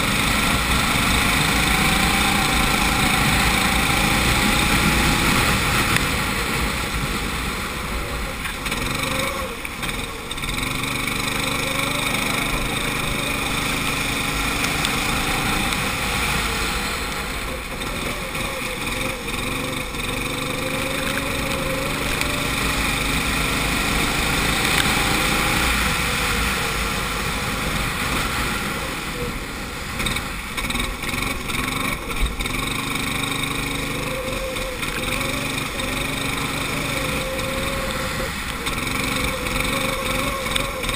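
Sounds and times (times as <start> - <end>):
go-kart engine revving: 0.0 - 40.9.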